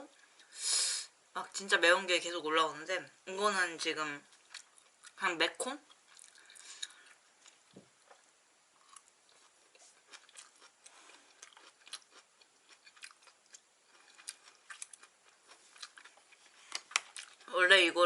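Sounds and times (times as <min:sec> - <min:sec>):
faint chewing: 0:04.2 - 0:05.2, 0:05.8 - 0:17.5.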